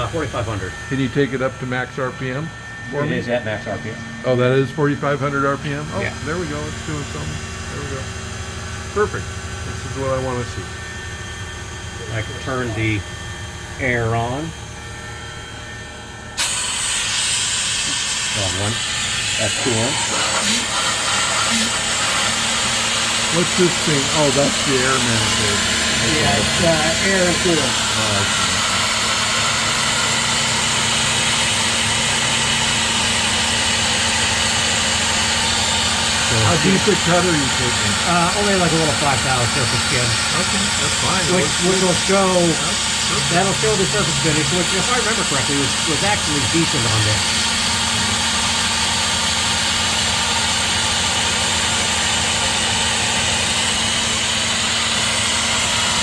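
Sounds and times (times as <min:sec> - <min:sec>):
milling machine spindle hum: 0:00.0 - 0:56.0
compressed air blast hiss: 0:16.4 - 0:30.6.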